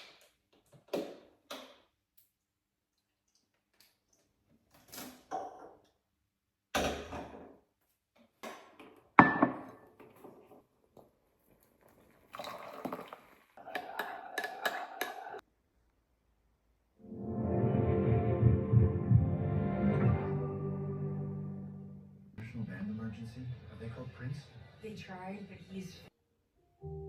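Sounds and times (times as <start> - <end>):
dishes and utensils clattering: 13.7 - 15.4.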